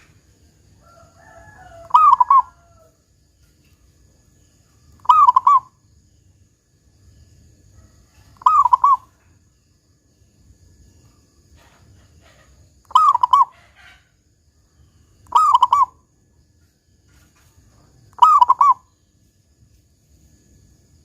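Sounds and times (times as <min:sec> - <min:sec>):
dove cooing: 0:01.3 - 0:02.9, 0:05.0 - 0:05.8, 0:08.3 - 0:09.2, 0:11.6 - 0:14.1, 0:15.3 - 0:16.0, 0:18.2 - 0:18.9.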